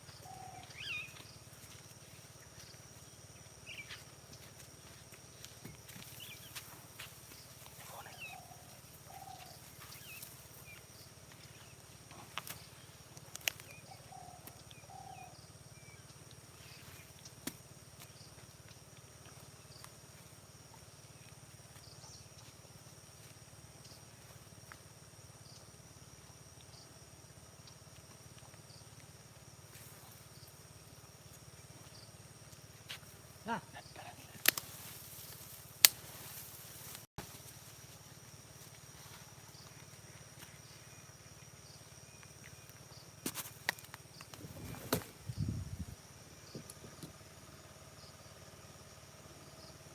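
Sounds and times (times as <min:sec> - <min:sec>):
birds chirping: 0:00.0 - 0:01.4, 0:03.6 - 0:04.4, 0:06.0 - 0:06.7, 0:07.3 - 0:17.1
sharp clicks: 0:34.4 - 0:34.6.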